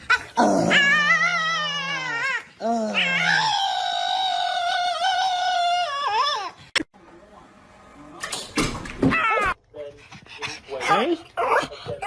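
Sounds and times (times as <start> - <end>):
dog howling: 0.1 - 6.6.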